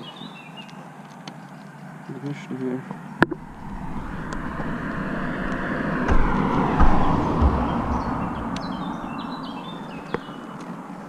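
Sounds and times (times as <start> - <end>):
road vehicle passing by: 3.3 - 11.0.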